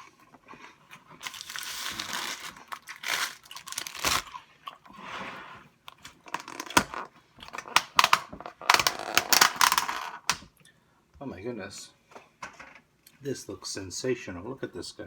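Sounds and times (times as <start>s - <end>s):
plastic and paper crinkling: 1.1s - 4.4s.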